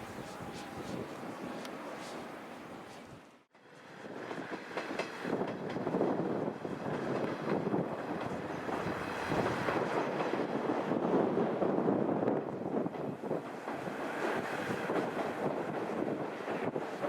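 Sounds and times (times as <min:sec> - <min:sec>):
train rumbling past: 0:00.0 - 0:17.0.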